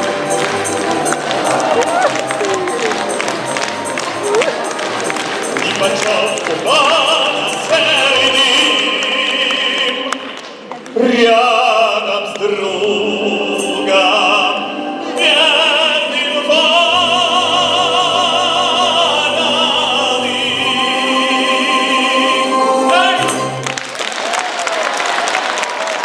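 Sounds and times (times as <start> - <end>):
musical accompaniment: 0.0 - 24.2
man singing with vibrato: 5.4 - 23.6.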